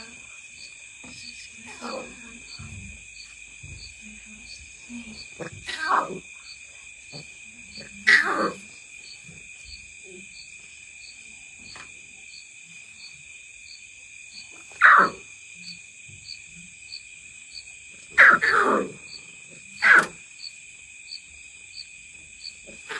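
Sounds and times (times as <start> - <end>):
chirring insect chorus: 0.0 - 22.9
lion cubs crying: 7.8 - 8.7, 14.7 - 15.2, 18.1 - 19.0, 19.8 - 20.2.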